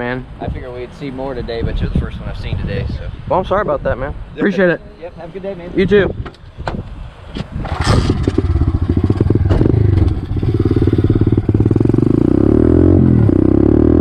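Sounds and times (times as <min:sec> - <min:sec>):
motorbike engine revving: 0:07.6 - 0:14.0.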